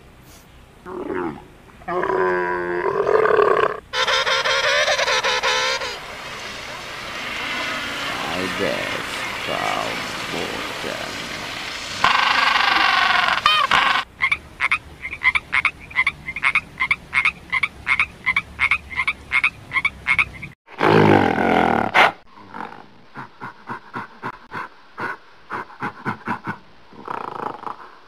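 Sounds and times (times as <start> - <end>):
loud long sound: 4.9 - 14.0
tree frog croaking: 12.0 - 20.3.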